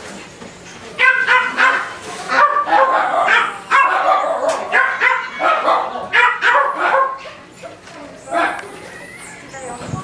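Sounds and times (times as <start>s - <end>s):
capybara yipping squeals: 3.2s - 6.5s.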